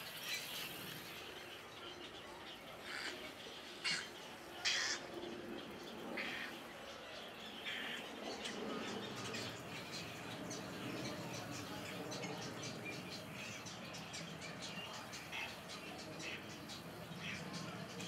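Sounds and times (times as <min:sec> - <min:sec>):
birds squawking: 0:02.8 - 0:05.1, 0:06.2 - 0:06.6.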